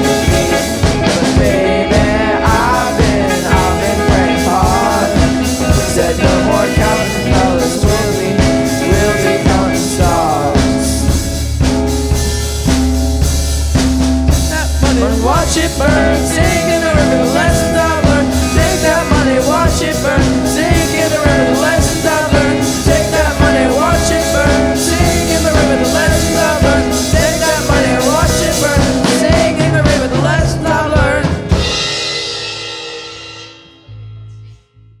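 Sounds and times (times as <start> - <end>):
rock band playing: 0.0 - 34.3.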